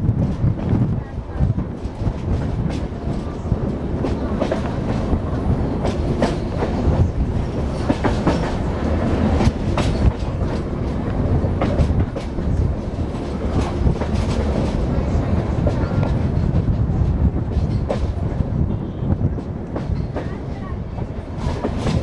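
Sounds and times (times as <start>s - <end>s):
train coaches rumbling on rails: 0.0s - 22.0s
wheels clicking over rail joints: 1.5s - 18.4s.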